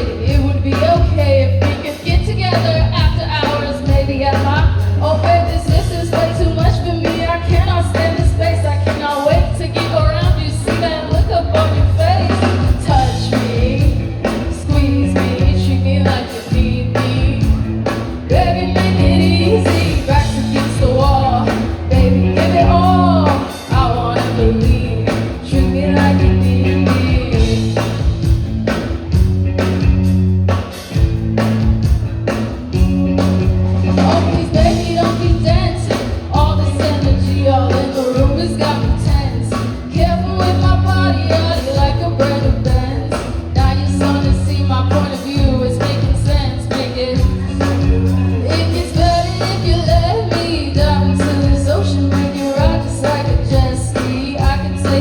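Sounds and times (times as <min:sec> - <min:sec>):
person singing: 0:00.0 - 0:28.0, 0:33.8 - 0:55.0
bass notes: 0:00.0 - 0:55.0.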